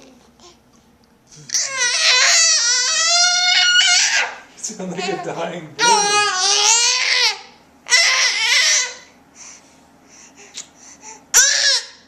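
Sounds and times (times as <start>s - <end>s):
baby squealing cries: 1.5s - 4.4s, 5.8s - 9.0s, 11.4s - 12.0s.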